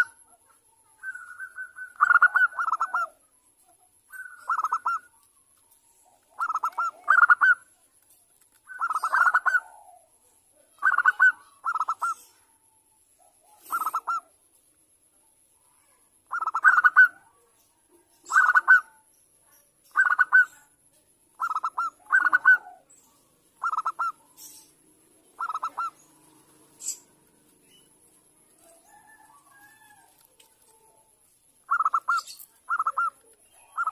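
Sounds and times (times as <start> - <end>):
dove cooing: 0.0 - 3.2, 6.0 - 7.7, 8.7 - 12.5, 13.3 - 14.3, 16.3 - 17.4, 18.2 - 19.0, 21.4 - 23.0, 23.6 - 31.1, 31.7 - 33.9.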